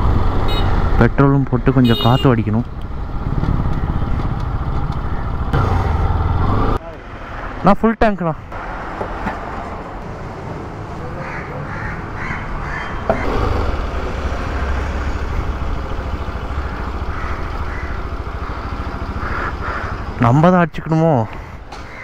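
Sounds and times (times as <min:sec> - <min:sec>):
motorcycle engine running: 0:01.9 - 0:06.4, 0:13.2 - 0:20.2
crows cawing: 0:05.0 - 0:05.5, 0:11.1 - 0:13.4, 0:14.3 - 0:20.2, 0:21.2 - 0:22.0.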